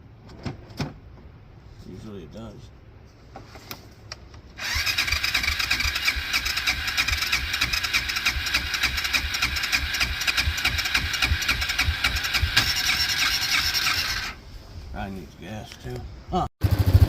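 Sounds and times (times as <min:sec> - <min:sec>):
electric starter cranking engine: 0:04.6 - 0:14.4.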